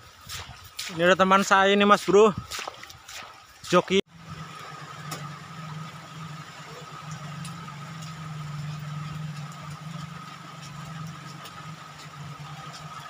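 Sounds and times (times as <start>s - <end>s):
heavy rain hiss: 4.1s - 13.0s.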